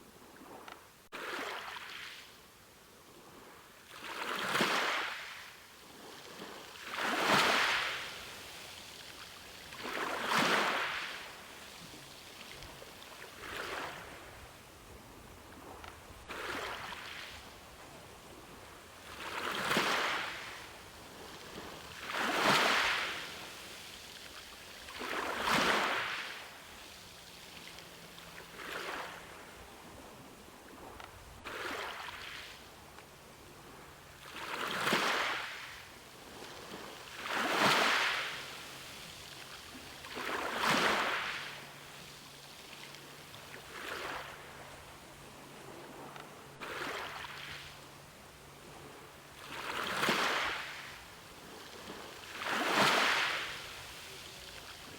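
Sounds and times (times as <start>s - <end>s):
ocean waves washing in: 3.9s - 54.9s.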